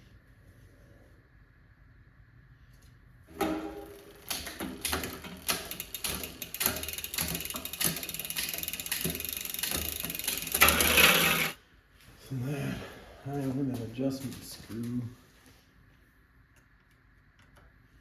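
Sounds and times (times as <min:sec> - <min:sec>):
bicycle chain ratcheting ticks: 0:03.9 - 0:11.6.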